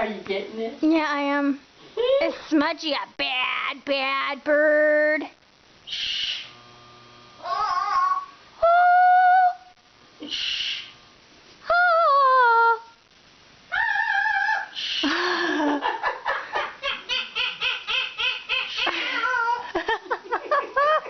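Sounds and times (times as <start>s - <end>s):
parrot whistling: 5.9s - 6.5s, 10.3s - 10.9s
parrot imitating laughter: 13.9s - 21.0s
parrot squawk: 16.8s - 19.6s.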